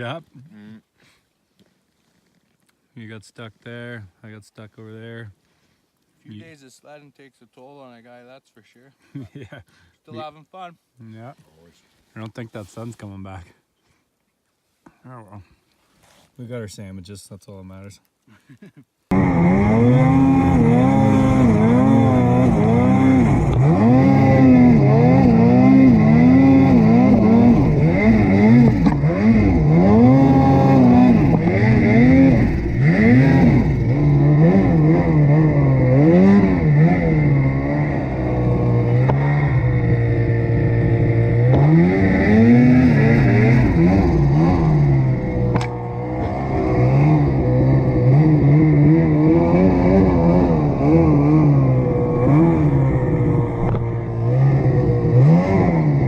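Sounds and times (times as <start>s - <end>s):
snowmobile engine revving: 19.1s - 56.0s.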